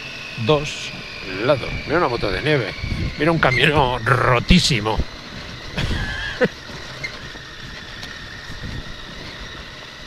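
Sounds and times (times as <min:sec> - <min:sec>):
motorcycle running at low speed: 0:00.0 - 0:10.0
wavering high-pitched sound: 0:00.4 - 0:05.0.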